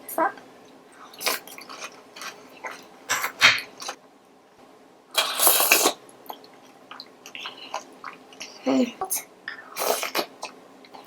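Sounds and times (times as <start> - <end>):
person eating crunchy bites: 1.2 - 4.0.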